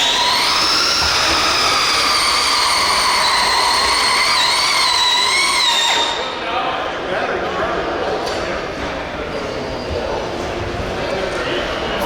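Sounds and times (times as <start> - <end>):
drivetrain whining at high pitch: 0.0 - 6.4.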